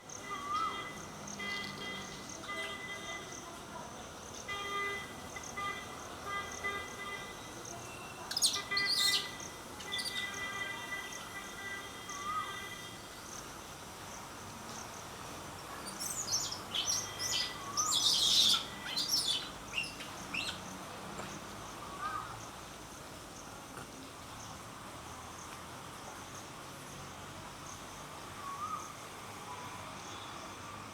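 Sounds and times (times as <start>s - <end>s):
high insect drone: 0.0s - 30.9s
birds chirping: 15.8s - 20.7s.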